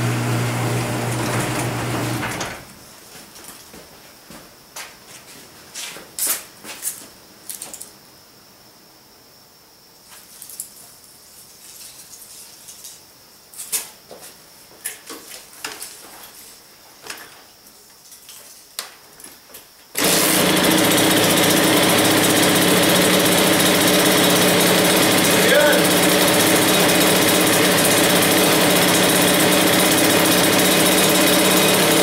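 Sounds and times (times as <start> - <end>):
two-stroke engine running: 20.0 - 32.0.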